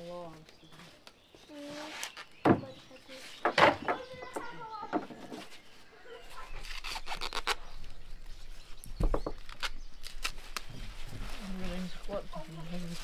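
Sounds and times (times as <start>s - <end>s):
corn husks rustling and tearing: 5.4s - 8.8s, 9.4s - 13.0s.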